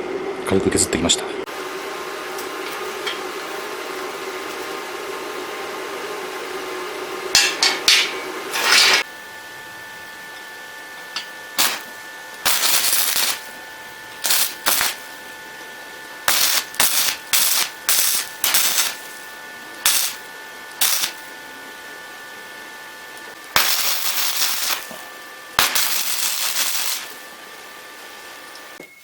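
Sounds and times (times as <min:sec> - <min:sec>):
welder machine hum: 0:00.0 - 0:28.8
welding arc crackle: 0:08.5 - 0:09.2, 0:11.1 - 0:15.6, 0:16.2 - 0:21.6, 0:23.1 - 0:28.8.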